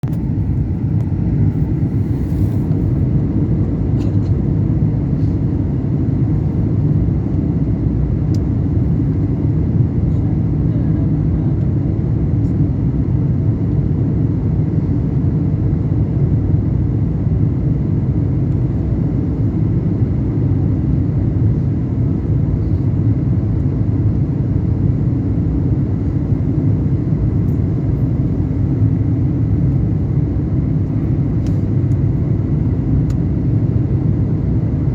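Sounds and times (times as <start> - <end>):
airliner engine rumble in cabin: 0.0 - 34.9.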